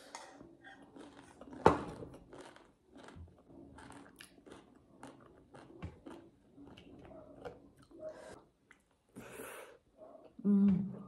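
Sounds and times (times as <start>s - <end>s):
close chewing: 0.3s - 8.0s.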